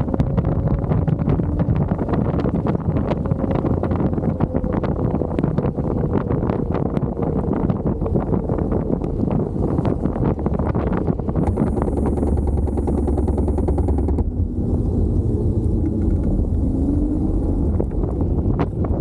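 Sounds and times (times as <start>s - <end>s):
scooter road and wind noise: 0.0s - 19.0s
small knocks and rattles: 11.3s - 14.4s.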